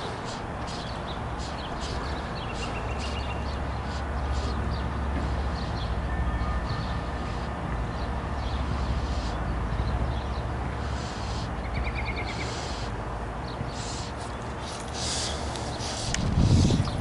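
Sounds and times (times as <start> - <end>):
birds chirping: 0.0 - 17.0
steady low rumble: 0.0 - 17.0.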